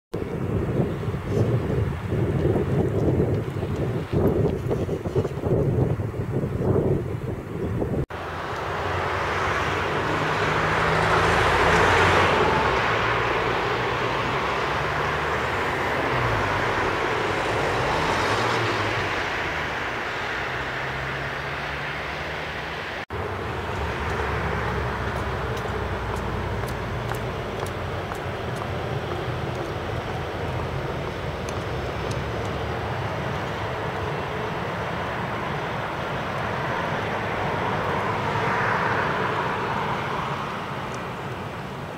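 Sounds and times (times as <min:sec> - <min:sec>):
diesel engine drone: 0:07.3 - 0:41.9
train wheels rumbling on rail: 0:23.2 - 0:38.0
light ticks: 0:31.4 - 0:32.6.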